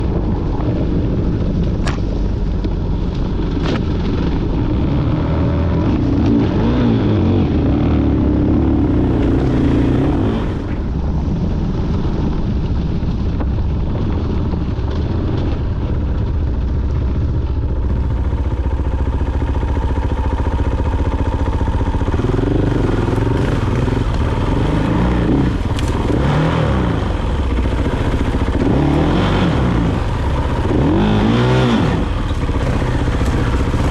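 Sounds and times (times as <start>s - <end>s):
dirt bike engine revving: 4.8s - 10.7s, 17.9s - 33.9s.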